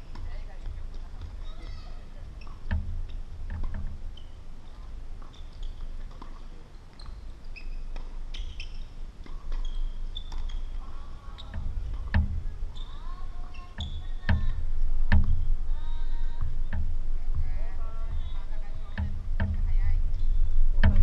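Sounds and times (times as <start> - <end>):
tennis ball strikes and bounces: 0.0 - 6.6, 7.7 - 15.5
shoe squeaks: 1.4 - 2.8, 4.0 - 14.6.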